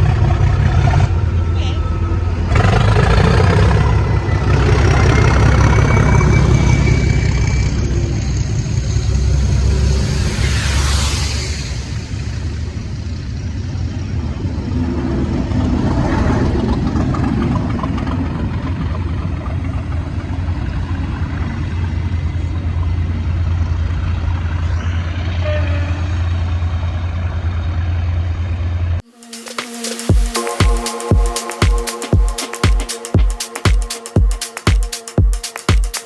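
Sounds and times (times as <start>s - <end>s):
diesel train engine rumbling: 0.0s - 29.0s
electronic music with a beat: 29.0s - 36.0s.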